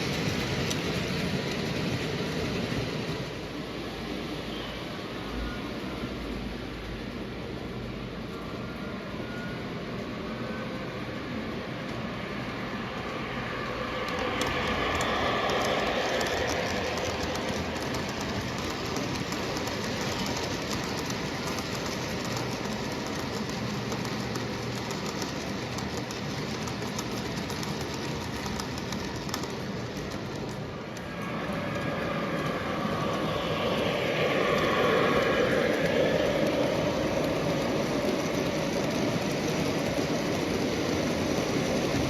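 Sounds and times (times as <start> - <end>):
model train rolling rumble: 0.0 - 8.5, 11.4 - 42.0
rail clicks: 0.0 - 42.0.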